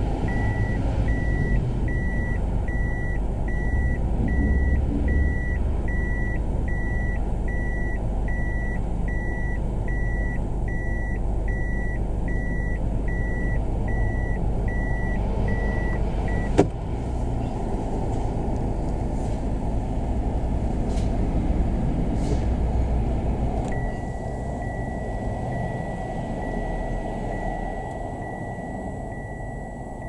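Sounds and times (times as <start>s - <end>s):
car engine running: 0.0s - 30.0s
car warning buzzer beeping: 0.3s - 16.7s, 23.7s - 30.0s.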